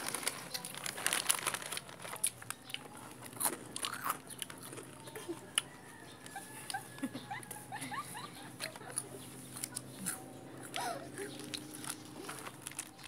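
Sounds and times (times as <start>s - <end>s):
faint low hum: 0.0s - 13.0s
chewing and mouth clicks: 2.2s - 7.6s, 8.6s - 13.0s.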